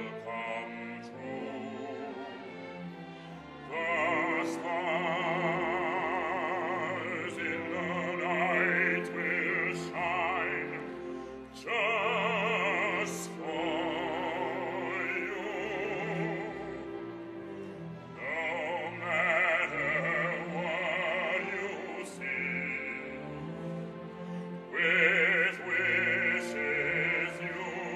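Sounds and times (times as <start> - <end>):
operatic singing with vibrato: 0.0 - 27.9.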